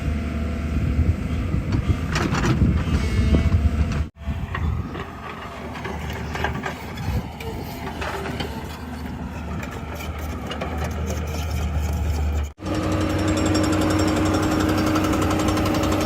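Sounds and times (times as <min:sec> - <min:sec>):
diesel engine running: 0:03.5 - 0:16.0.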